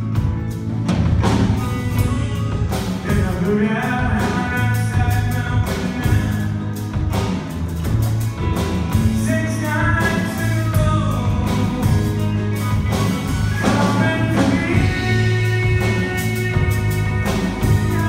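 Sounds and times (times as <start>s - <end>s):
guitar: 0.0s - 18.0s
live band playing slow ballad: 0.0s - 18.0s
steady bass line: 0.0s - 18.0s.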